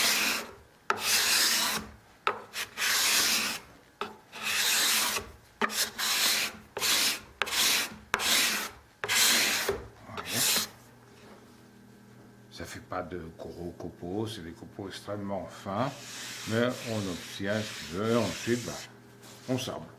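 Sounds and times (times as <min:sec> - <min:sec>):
scraper scraping wood: 0:00.0 - 0:03.7, 0:04.3 - 0:10.8, 0:15.9 - 0:19.6.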